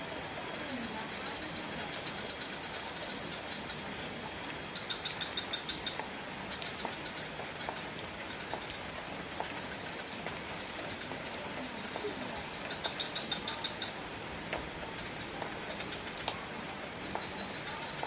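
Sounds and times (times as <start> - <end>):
single raindrops: 0.0 - 18.0
steady rain falling: 0.0 - 18.0.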